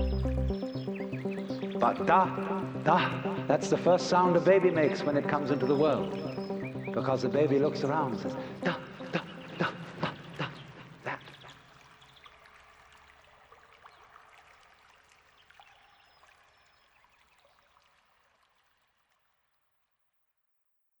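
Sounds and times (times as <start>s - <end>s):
trickling running water: 11.1s - 19.2s.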